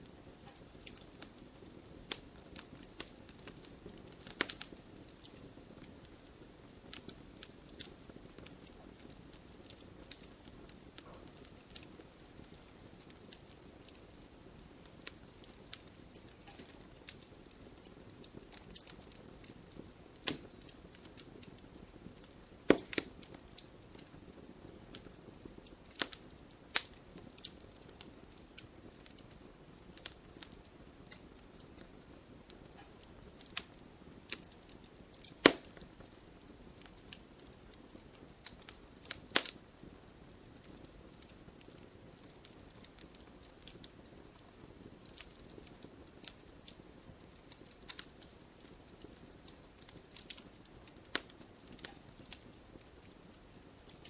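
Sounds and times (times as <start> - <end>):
faint fire hiss: 0.0 - 54.0
wood fire crackling: 0.0 - 54.0.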